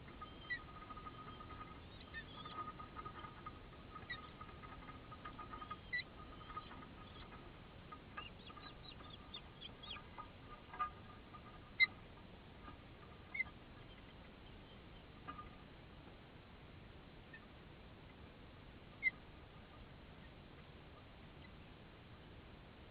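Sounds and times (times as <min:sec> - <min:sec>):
sharp bird calls: 0:00.0 - 0:15.6
birds chirping: 0:00.0 - 0:15.8.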